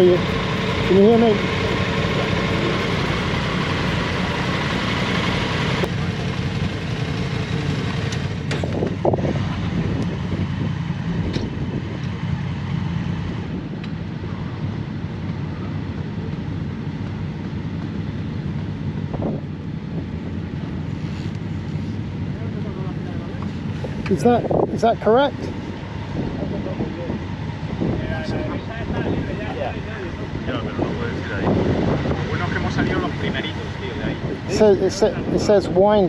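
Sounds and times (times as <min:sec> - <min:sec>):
motorcycle engine running: 0:00.0 - 0:36.0
wind and road noise: 0:00.0 - 0:36.0.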